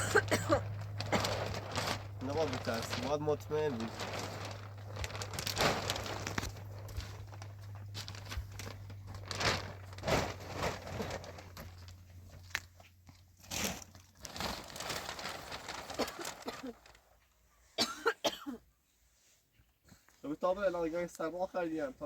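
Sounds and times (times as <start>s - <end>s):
steady low hum: 0.0s - 12.3s
plastic sheeting crinkling: 0.0s - 17.4s.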